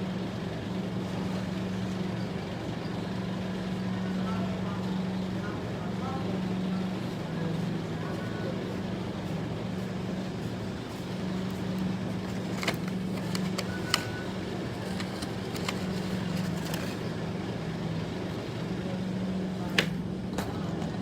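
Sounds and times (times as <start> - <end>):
car engine humming: 10.0 - 20.3.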